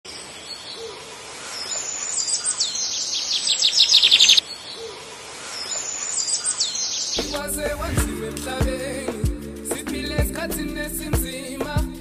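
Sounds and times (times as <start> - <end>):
fast loud bird trill: 1.5 - 4.9
bird whistling chirps: 1.6 - 4.8.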